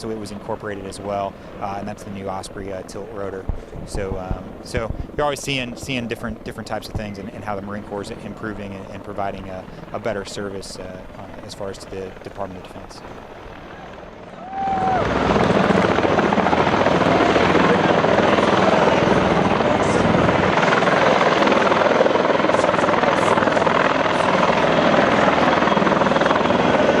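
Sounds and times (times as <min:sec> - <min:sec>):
helicopter engine and rotors: 0:00.0 - 0:27.0.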